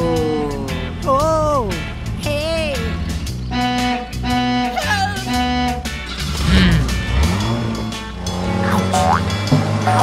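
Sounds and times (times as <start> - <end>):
background music: 0.0 - 10.0
cartoon engine revving: 5.3 - 7.6, 8.4 - 10.0.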